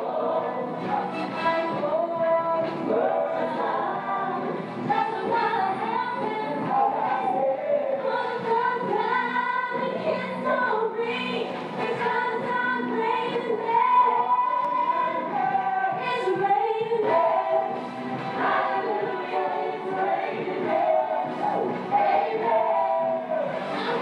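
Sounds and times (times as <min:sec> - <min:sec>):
women singing together: 0:00.0 - 0:24.0.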